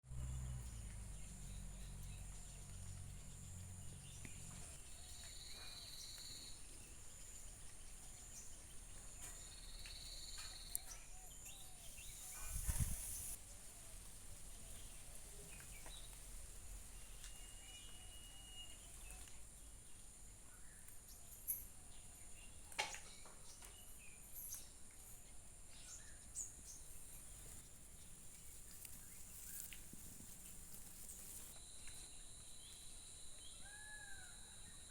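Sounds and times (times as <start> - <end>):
insects droning: 11.7 - 14.0, 26.6 - 34.9
bird calls: 25.8 - 31.6.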